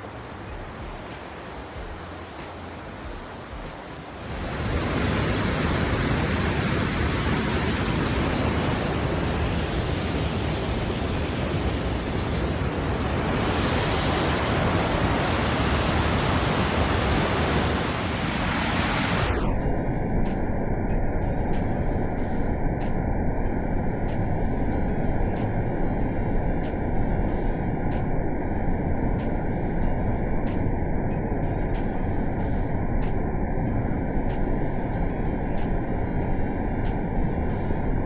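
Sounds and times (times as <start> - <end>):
waterfall and creek rushing: 0.0 - 19.3
dull muffled sound: 0.0 - 38.0.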